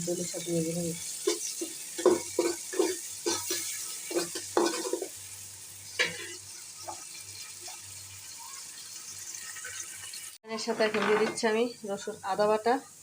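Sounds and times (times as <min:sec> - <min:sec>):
vegetables sizzling in hot oil: 0:00.0 - 0:13.0
spoon scraping and knocking pan: 0:01.2 - 0:05.2, 0:06.0 - 0:07.8, 0:10.5 - 0:11.6.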